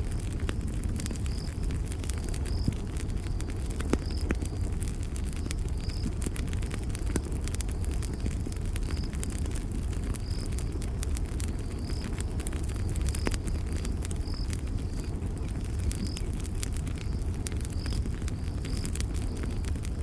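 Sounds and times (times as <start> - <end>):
campfire crackling and popping: 0.0 - 20.0
cricket chirping: 1.1 - 6.2, 7.7 - 9.2, 10.1 - 10.8, 11.4 - 20.0.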